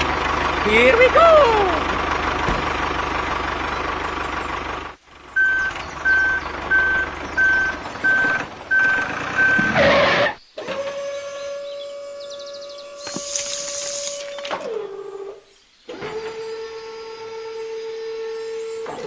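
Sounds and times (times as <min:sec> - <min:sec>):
vehicle engine running: 0:00.0 - 0:10.3
reversing alarm beeps: 0:05.4 - 0:10.2.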